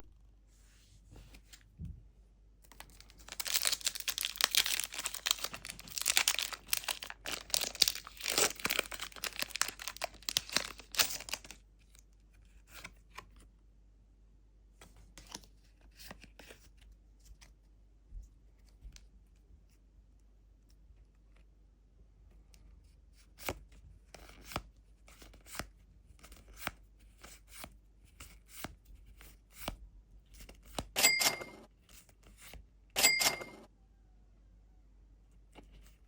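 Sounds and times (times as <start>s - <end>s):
foil wrapper tearing and crinkling: 2.8s - 11.6s.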